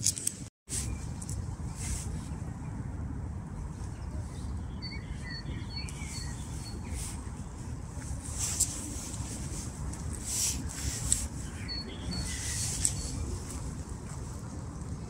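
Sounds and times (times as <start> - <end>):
small bird chirping: 4.4 - 7.2.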